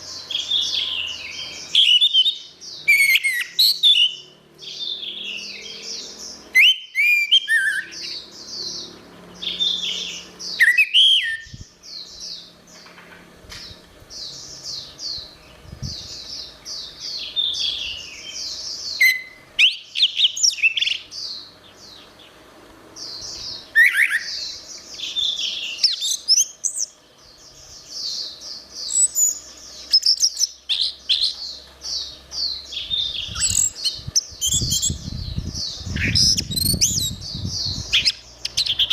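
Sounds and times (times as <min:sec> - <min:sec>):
thrush singing whistled phrases: 0:06.5 - 0:08.0, 0:10.6 - 0:11.6.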